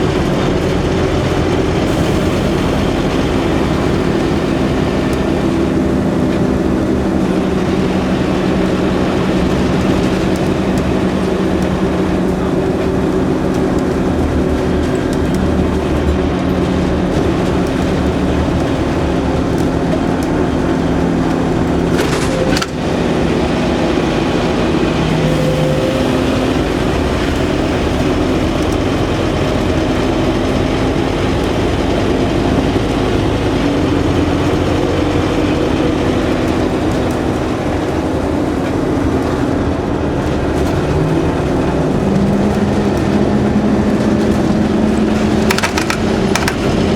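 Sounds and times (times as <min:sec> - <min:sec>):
bus diesel engine running: 0:00.0 - 0:46.9.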